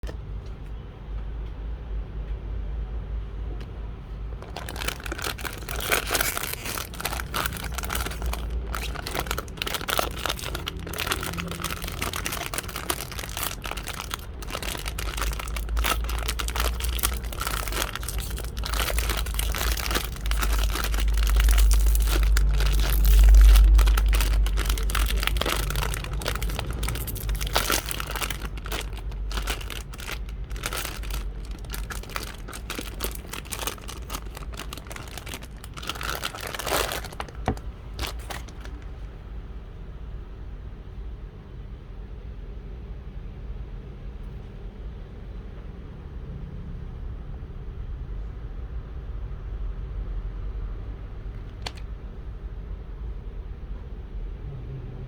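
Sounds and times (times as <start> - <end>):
low rumble of handling: 0.0 - 39.7, 51.2 - 52.4
plastic packaging crinkling: 4.3 - 39.1, 51.4 - 51.8.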